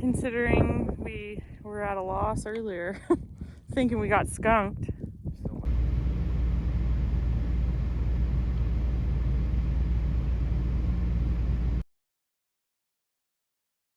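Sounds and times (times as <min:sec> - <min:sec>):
vehicle driving rumble: 0:05.6 - 0:11.8.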